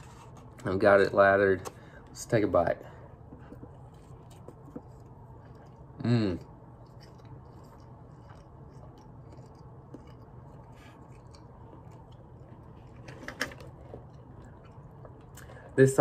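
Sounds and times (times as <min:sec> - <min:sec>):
soft chewing: 0:03.0 - 0:15.8.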